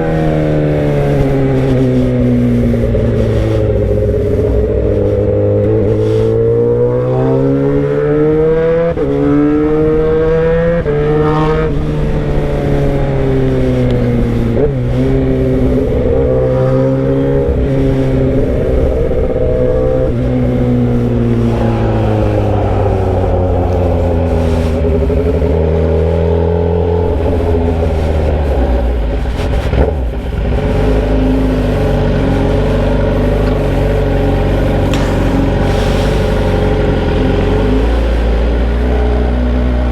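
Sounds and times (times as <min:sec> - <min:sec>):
gear shifts: 0:00.0 - 0:10.1, 0:11.2 - 0:39.9
loud motorcycle engine revving: 0:00.0 - 0:39.9.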